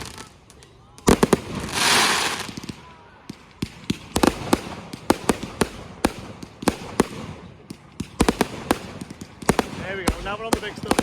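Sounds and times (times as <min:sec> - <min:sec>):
fireworks banging: 0:00.0 - 0:11.0
firework hiss: 0:01.1 - 0:02.7.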